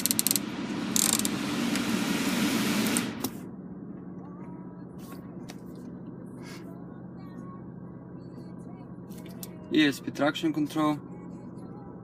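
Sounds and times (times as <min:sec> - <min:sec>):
car blower fan rushing air: 0:00.0 - 0:04.2
faint low hum: 0:03.2 - 0:12.0.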